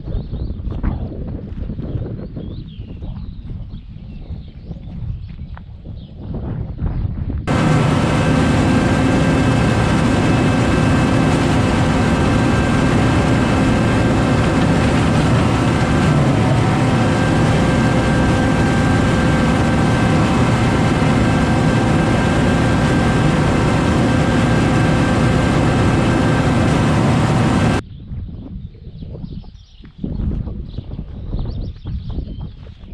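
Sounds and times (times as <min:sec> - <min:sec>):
tractor engine droning: 0:07.5 - 0:27.8.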